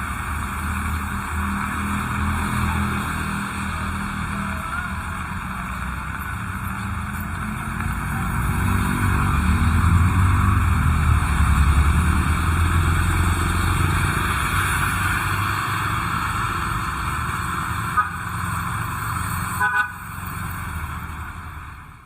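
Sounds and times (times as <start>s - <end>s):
steady rain: 0.0s - 19.4s
vehicle engine passing: 0.0s - 21.8s.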